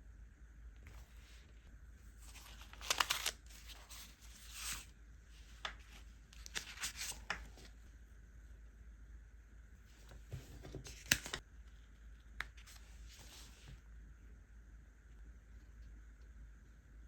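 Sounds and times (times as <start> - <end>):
paper rustling: 2.2 - 7.8, 10.0 - 11.4.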